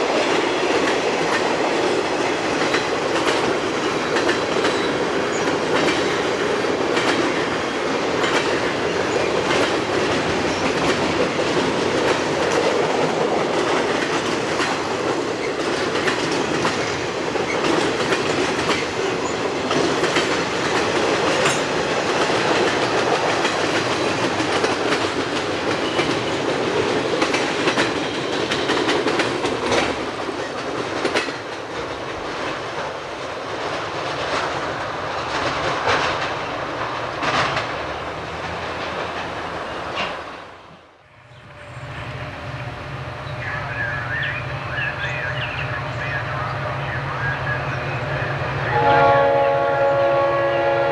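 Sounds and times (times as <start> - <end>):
train wheels clacking over rail joints: 0.0 - 40.6.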